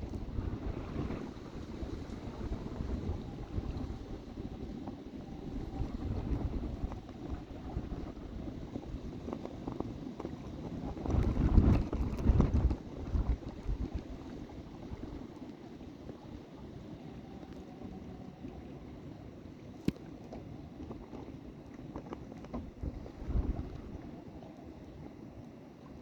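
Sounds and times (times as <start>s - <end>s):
wind buffeting microphone: 0.0s - 18.6s, 22.0s - 24.2s.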